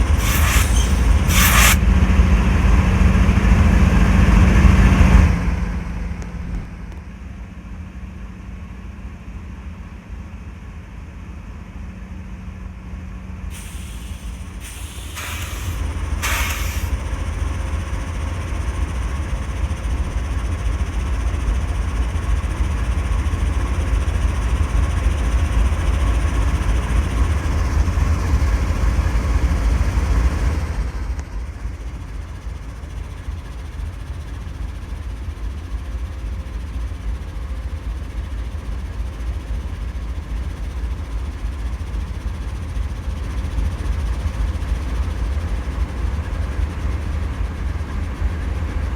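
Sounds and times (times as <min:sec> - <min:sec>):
short hisses: 0:00.0 - 0:01.8, 0:13.5 - 0:17.2
freight train rumbling on rails: 0:00.0 - 0:09.7, 0:11.4 - 0:48.9.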